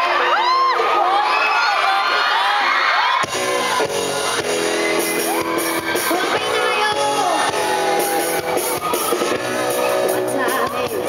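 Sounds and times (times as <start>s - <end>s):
crowd shouting and cheering: 0.0s - 11.0s
rock band playing live: 3.0s - 11.0s.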